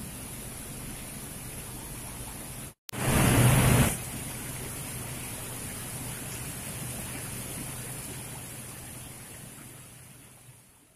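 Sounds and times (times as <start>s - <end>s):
heavy rain falling: 3.0s - 5.1s.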